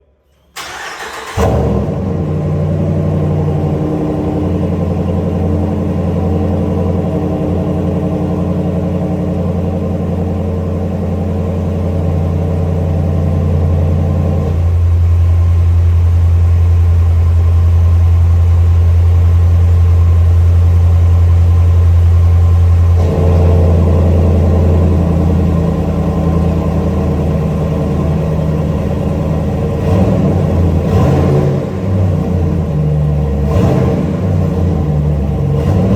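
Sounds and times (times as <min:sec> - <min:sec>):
engine starting and idling: 0:00.2 - 0:17.4.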